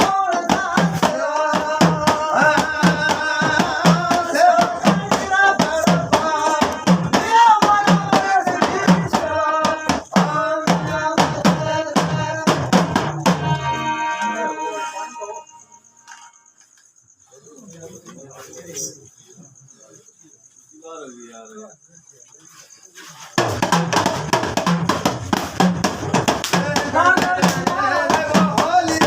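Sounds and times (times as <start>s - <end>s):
fast drum beats: 0.0s - 13.6s, 23.4s - 29.0s
man singing: 0.0s - 15.6s, 26.5s - 29.0s
held tone: 13.2s - 16.5s.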